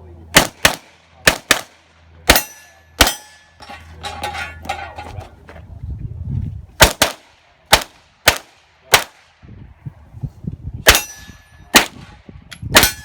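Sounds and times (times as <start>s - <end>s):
carbine gunshots: 0.3s - 3.3s, 6.8s - 9.2s, 11.8s - 12.2s
light metallic clatter: 2.5s - 5.4s.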